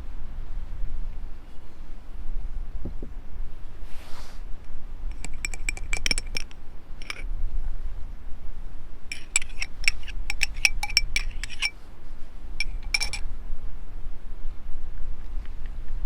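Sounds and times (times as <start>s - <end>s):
glassware clinking: 5.1s - 7.2s, 9.1s - 11.7s, 12.6s - 13.2s.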